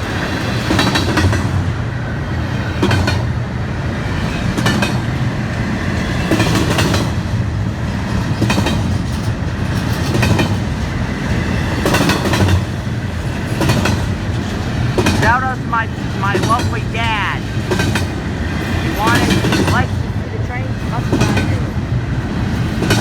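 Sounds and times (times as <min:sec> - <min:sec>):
train cars rolling past: 0:00.0 - 0:23.0
wheels clacking over rail joints: 0:04.1 - 0:15.2.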